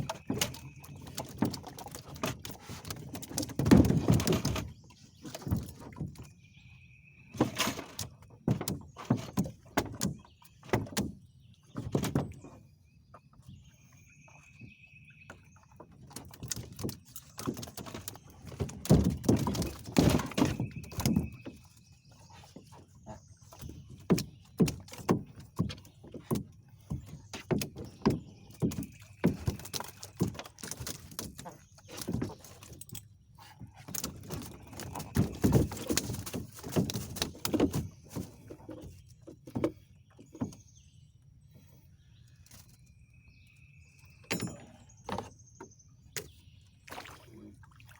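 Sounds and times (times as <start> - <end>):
knocks and thumps: 0.2 - 4.7, 16.2 - 21.6, 33.9 - 40.6.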